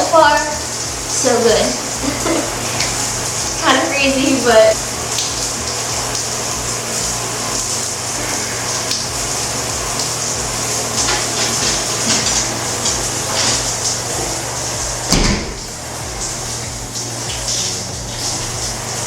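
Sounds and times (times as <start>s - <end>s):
shower water spraying: 0.0s - 19.0s.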